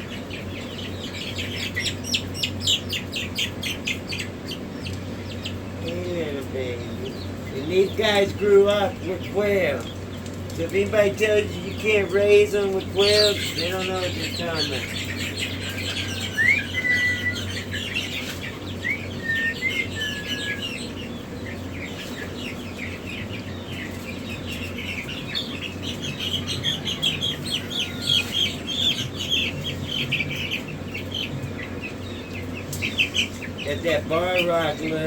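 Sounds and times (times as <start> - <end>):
chicks peeping: 0.0 - 35.0
steady low hum: 0.0 - 35.0
clear whistled calls: 12.9 - 34.9.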